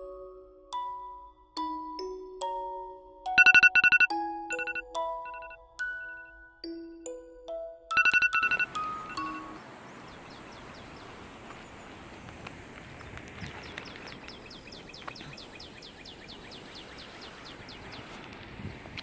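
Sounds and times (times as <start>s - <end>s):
outdoor background noise: 7.9s - 19.0s
bird trilling: 8.0s - 9.6s.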